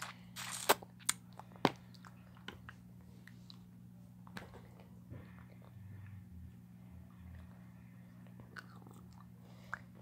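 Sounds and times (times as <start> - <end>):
chewing: 8.2 - 10.0.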